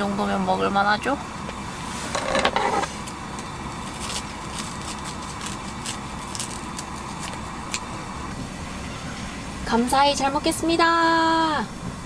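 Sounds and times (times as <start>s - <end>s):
low rumble of fire: 0.0s - 12.0s
fire crackling: 3.0s - 8.9s.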